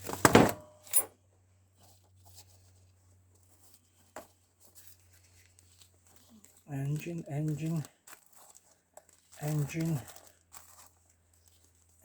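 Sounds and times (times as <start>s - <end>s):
loud handling noises: 0.0s - 1.1s
faint paper rustling: 1.7s - 12.0s.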